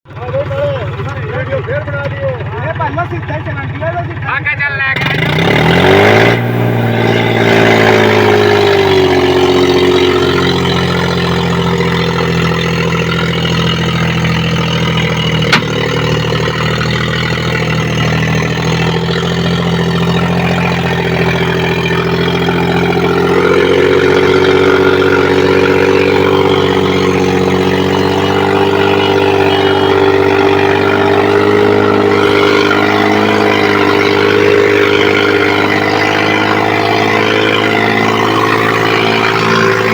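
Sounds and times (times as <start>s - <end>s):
tractor engine running: 0.0s - 39.9s
sharp click: 15.5s - 15.9s.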